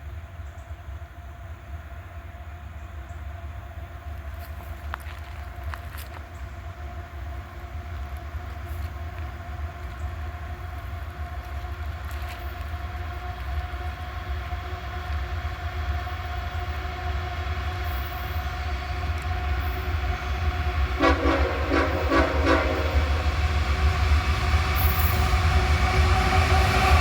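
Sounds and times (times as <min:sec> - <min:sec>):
diesel locomotive rumble: 0:00.0 - 0:27.0
locomotive horn blasts: 0:20.9 - 0:23.4.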